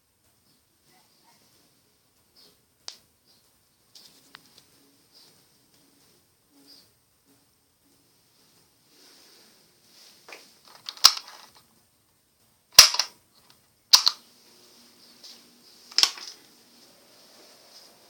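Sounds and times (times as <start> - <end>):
sharp loud clicks: 10.7 - 11.6, 12.7 - 13.2, 13.9 - 14.2, 15.9 - 16.4.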